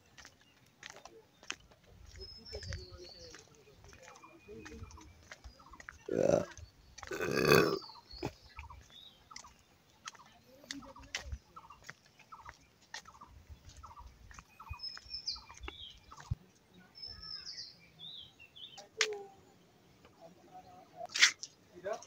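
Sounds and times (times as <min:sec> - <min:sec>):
birds calling: 0:00.0 - 0:16.4.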